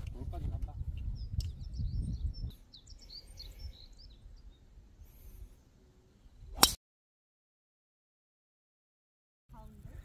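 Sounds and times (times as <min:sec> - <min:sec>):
faint low outdoor background: 0:00.0 - 0:06.8, 0:09.5 - 0:10.0
small birds chirping: 0:00.6 - 0:06.7.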